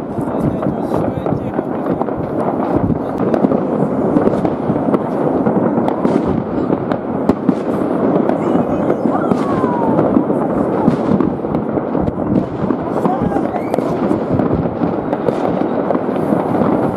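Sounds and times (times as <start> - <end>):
fireworks crackling and banging: 0.0 - 16.9
falling firework whistle: 8.3 - 11.2, 13.2 - 14.2.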